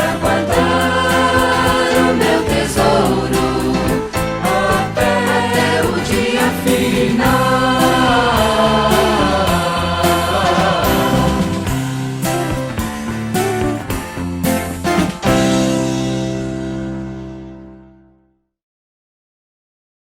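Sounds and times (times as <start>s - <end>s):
vocal group singing in harmony: 0.0s - 12.4s
band with bass and drums: 0.0s - 17.4s.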